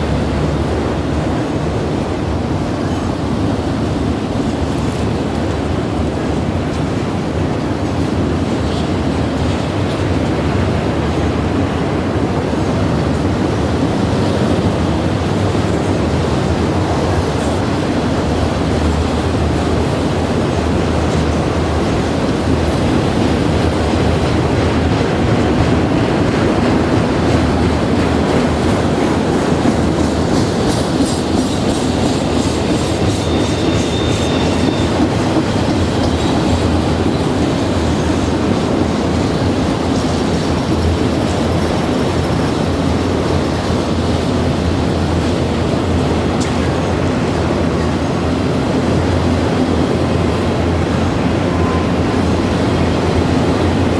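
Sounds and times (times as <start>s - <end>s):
train wheels rumbling on track: 0.0s - 53.9s
high wheel squeal: 31.0s - 35.3s, 48.8s - 53.9s.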